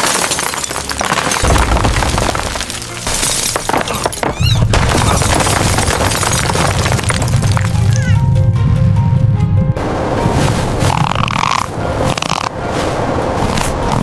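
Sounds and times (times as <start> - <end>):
things shattering and breaking: 0.0 - 8.2
music: 0.0 - 14.0
deep rumble: 1.4 - 13.9.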